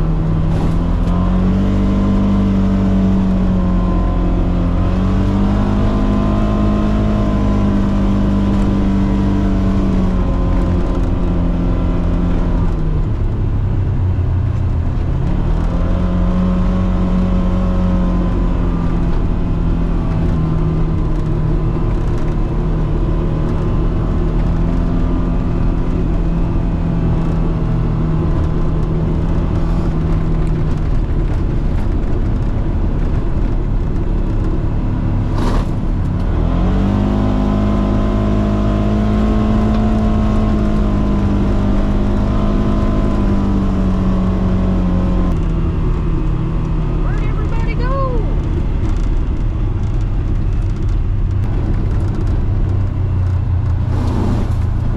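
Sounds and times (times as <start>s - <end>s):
vehicle engine running: 0.0s - 54.9s
low rumble: 47.1s - 54.9s.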